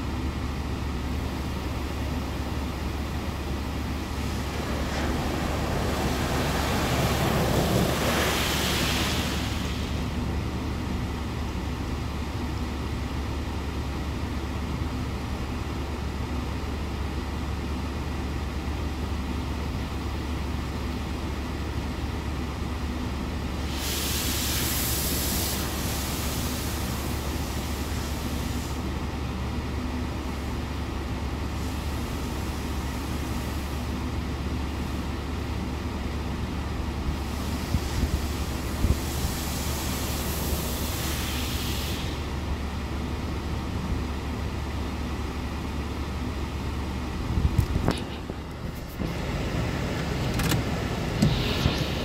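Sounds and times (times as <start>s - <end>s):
car wash rumble: 0.0s - 52.0s
loud hissing spray: 3.5s - 10.8s, 23.5s - 28.9s, 37.1s - 42.8s, 50.8s - 52.0s.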